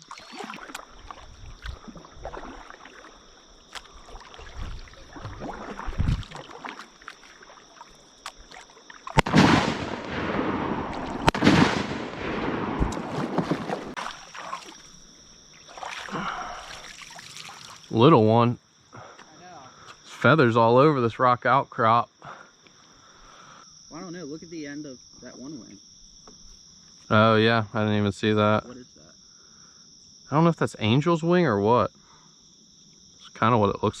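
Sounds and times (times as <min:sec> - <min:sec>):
shotgun blasts echoing: 0:09.2 - 0:14.0.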